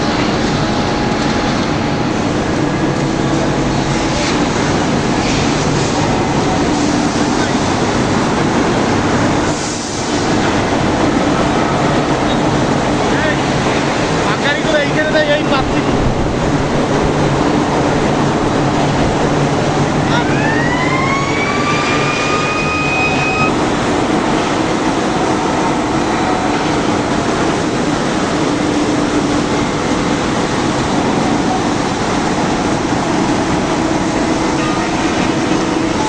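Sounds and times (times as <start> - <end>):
factory machinery hum: 0.0 - 36.0
motor whine rising in pitch: 15.6 - 36.0.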